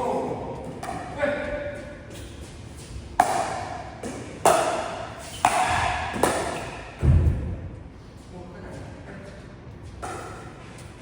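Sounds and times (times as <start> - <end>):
dull low thump: 7.0 - 7.8.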